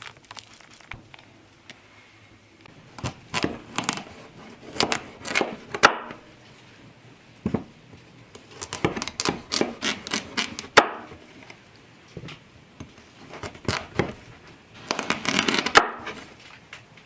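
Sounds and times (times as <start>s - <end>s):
food scraping and knocking: 2.7s - 6.8s, 7.4s - 16.5s.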